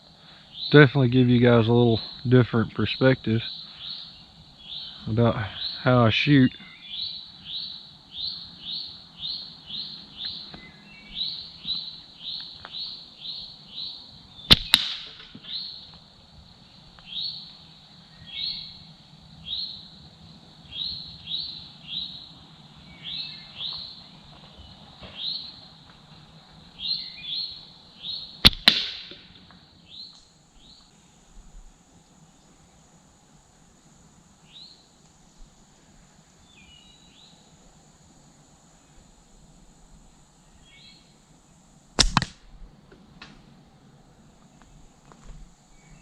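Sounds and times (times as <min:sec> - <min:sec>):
bird chirping: 0:00.3 - 0:15.9, 0:16.7 - 0:19.9, 0:20.7 - 0:25.6, 0:26.8 - 0:29.1
slingshot bands snapping: 0:14.5 - 0:15.3, 0:28.5 - 0:29.2, 0:42.0 - 0:42.4
ball hitting target crack: 0:14.5 - 0:15.5, 0:28.4 - 0:29.4, 0:42.0 - 0:42.5.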